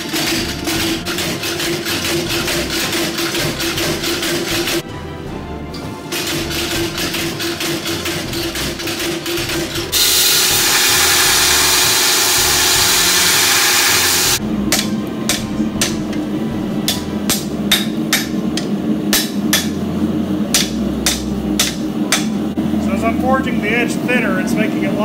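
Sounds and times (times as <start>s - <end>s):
hammer striking steel on anvil: 5.7s - 22.6s
loud steady rushing noise: 5.9s - 25.0s.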